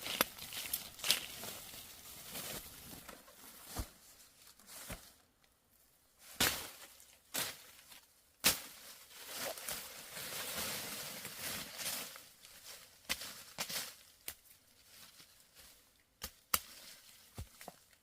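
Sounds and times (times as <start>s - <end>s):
rustling and scraping: 0.0s - 5.2s.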